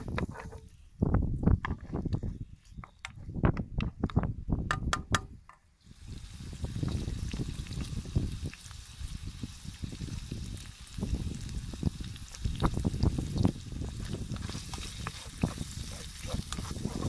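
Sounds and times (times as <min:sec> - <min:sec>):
wooden spoon scraping a pan: 0:00.0 - 0:00.8, 0:14.0 - 0:17.0
liver sizzling in a pan: 0:05.8 - 0:17.0.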